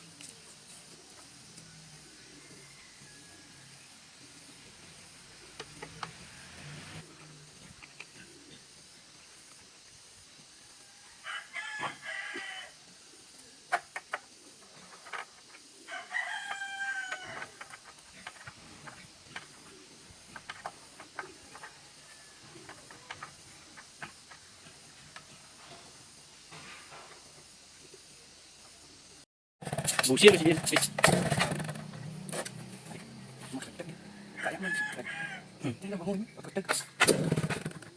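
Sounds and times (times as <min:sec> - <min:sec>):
rooster crowing: 0:02.0 - 0:04.0, 0:10.6 - 0:12.8, 0:15.8 - 0:17.6, 0:21.5 - 0:22.9, 0:33.1 - 0:35.8.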